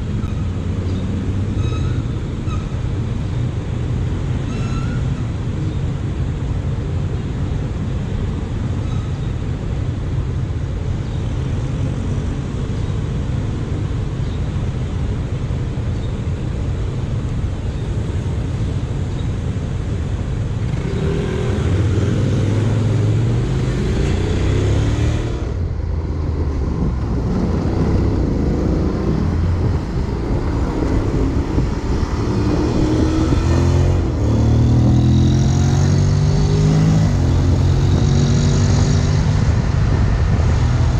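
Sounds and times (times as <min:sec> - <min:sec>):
wind and road noise: 0:00.0 - 0:40.9
motorcycle engine accelerating: 0:26.4 - 0:40.9.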